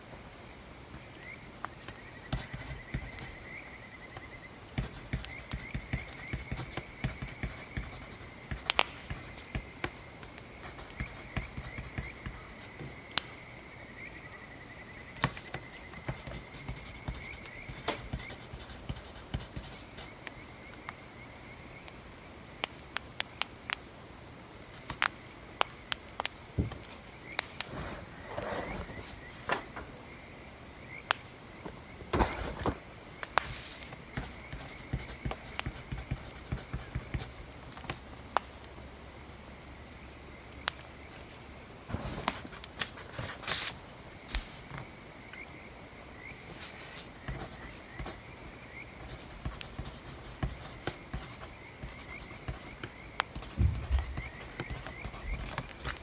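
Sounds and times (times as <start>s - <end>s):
scratchy rustles: 27.4s - 29.9s.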